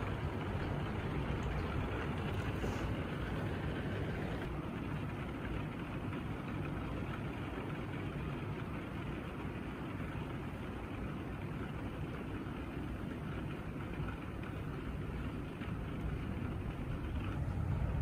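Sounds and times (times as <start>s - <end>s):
heavy rain falling: 0.0s - 7.7s, 12.3s - 18.0s.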